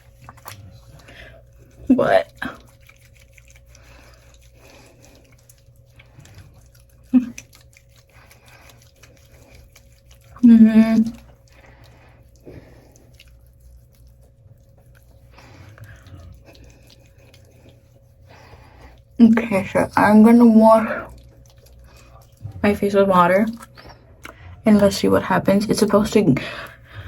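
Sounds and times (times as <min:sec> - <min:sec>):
wet rubbing on skin: 0:00.0 - 0:26.9
person humming: 0:10.4 - 0:11.2.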